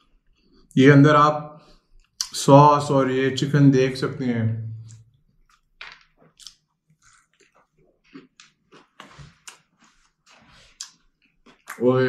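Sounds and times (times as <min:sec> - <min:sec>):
chewing with small crunches: 0:01.6 - 0:02.4, 0:04.8 - 0:12.0.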